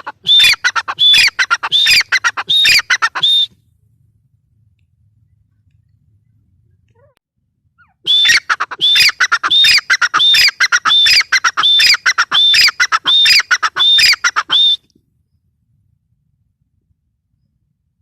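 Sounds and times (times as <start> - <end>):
francolin calling: 0.0 - 3.5, 7.8 - 15.4.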